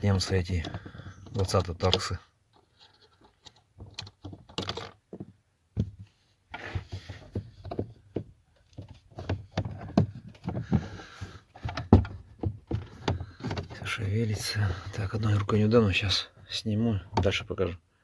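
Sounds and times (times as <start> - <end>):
plastic scraping: 8.7 - 15.7.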